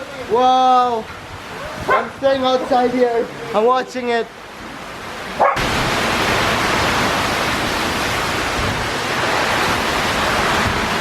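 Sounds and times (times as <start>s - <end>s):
strong wind: 0.0s - 3.6s, 4.4s - 11.0s
heavy rain pouring: 0.0s - 11.0s.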